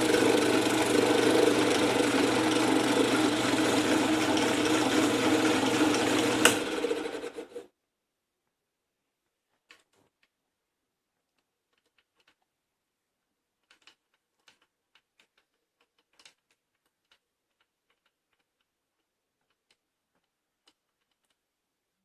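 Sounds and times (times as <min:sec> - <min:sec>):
faint small clicks and ticks: 0:11.2 - 0:12.6, 0:13.6 - 0:21.6.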